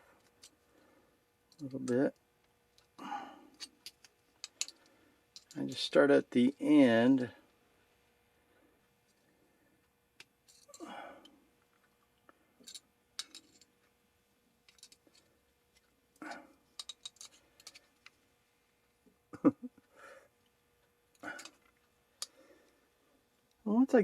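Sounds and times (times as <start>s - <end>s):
pliers clicking on wire: 16.8s - 17.9s.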